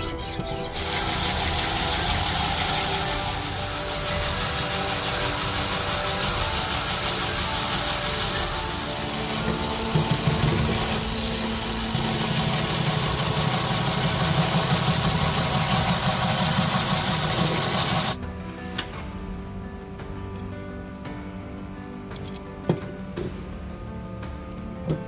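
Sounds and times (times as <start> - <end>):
tool rasping on knife: 0.0 - 18.2
background music: 0.0 - 25.0.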